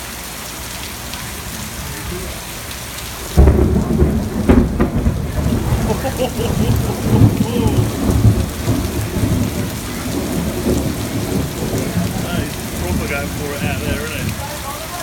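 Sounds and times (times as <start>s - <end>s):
heavy rain: 0.0s - 15.0s
thunder rumbling: 3.2s - 15.0s.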